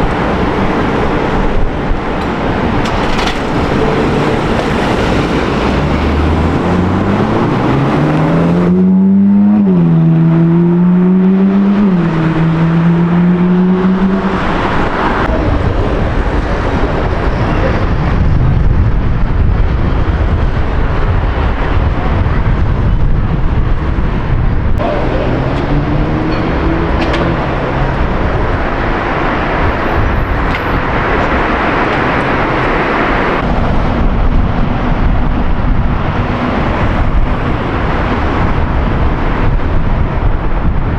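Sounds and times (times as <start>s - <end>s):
car engine accelerating hard: 0.0s - 17.3s, 24.7s - 40.9s
road and traffic rumble: 0.0s - 40.9s
another car engine rising: 2.2s - 15.3s, 24.8s - 29.6s.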